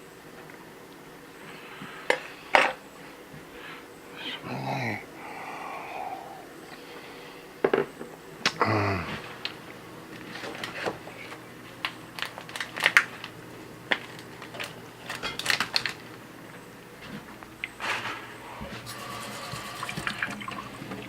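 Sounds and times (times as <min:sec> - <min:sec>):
short low vocal sound: 0:04.2 - 0:06.6, 0:08.4 - 0:09.3
cutlery and dishes clinking: 0:15.1 - 0:15.6.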